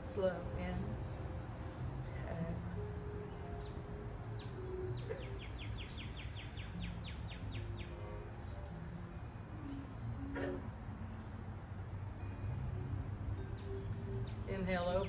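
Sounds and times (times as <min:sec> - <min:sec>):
low outdoor background noise: 0:00.0 - 0:15.0.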